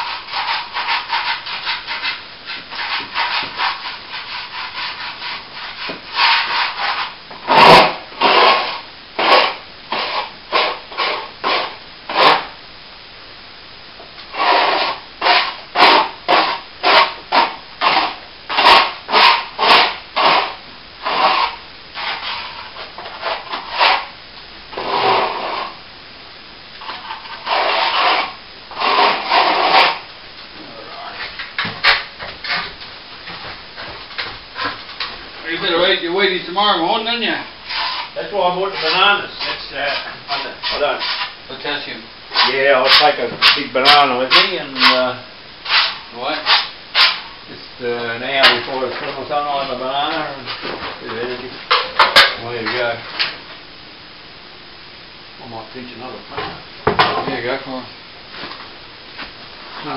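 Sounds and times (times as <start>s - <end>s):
sanding plaster by hand: 0.0s - 12.4s, 27.3s - 30.0s, 42.4s - 45.0s.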